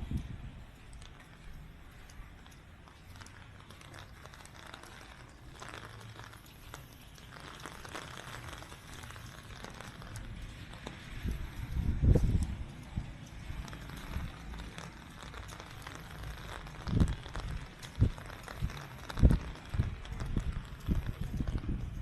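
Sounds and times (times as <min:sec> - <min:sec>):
footsteps on wet pavement: 0:00.0 - 0:22.0.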